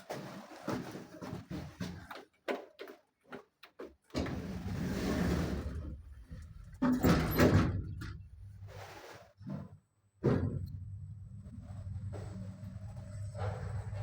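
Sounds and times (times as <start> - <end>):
lift doors sliding on track: 4.2 - 8.0, 10.3 - 14.0.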